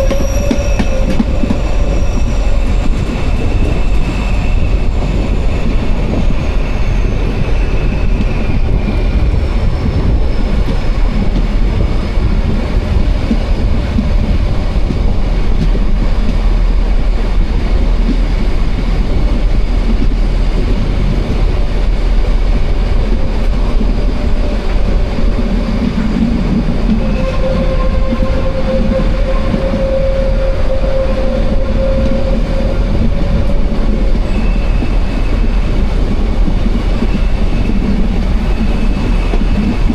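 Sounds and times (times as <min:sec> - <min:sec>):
wheel squeals: 0:00.0 - 0:11.1, 0:25.6 - 0:39.9
train rumbling: 0:00.0 - 0:39.9.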